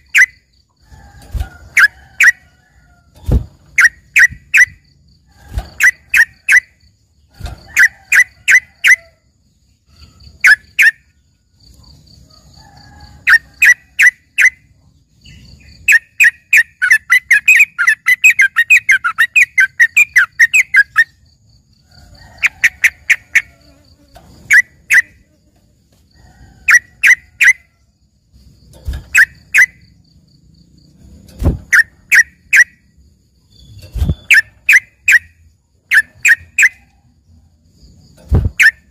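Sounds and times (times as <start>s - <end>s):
bulbul singing: 0.0s - 0.7s, 3.6s - 9.0s, 10.2s - 11.3s, 13.3s - 21.4s, 24.4s - 25.3s, 29.0s - 30.1s, 33.5s - 36.9s.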